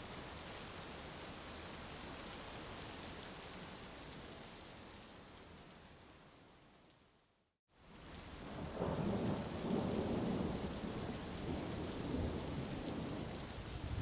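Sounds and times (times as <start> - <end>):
heavy rain: 0.0 - 6.7, 7.7 - 14.0
thunder rumbling: 8.5 - 14.0.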